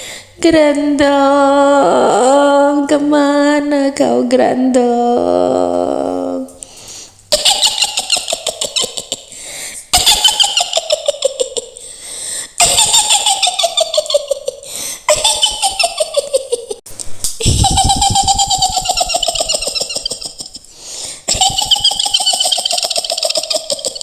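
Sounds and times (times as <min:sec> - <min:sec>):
high cackling laugh: 0:07.3 - 0:11.9, 0:12.6 - 0:16.8, 0:17.4 - 0:24.0.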